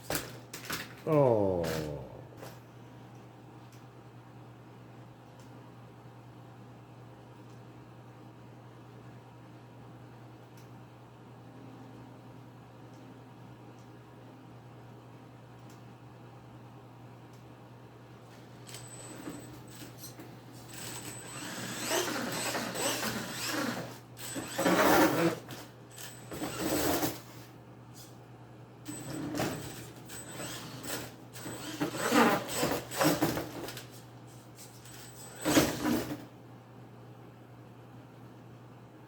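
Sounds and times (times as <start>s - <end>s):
toy truck motor whirring: 20.7s - 27.3s, 29.6s - 33.3s.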